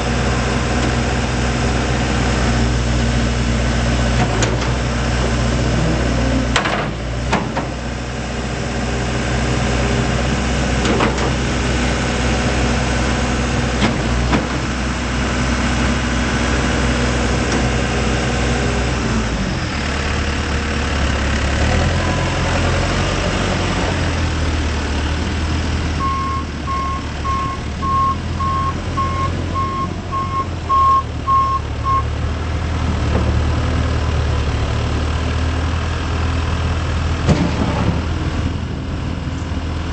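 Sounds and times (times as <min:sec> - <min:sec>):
diesel engine running: 0:00.0 - 0:39.9
reversing alarm beeping: 0:26.0 - 0:32.1.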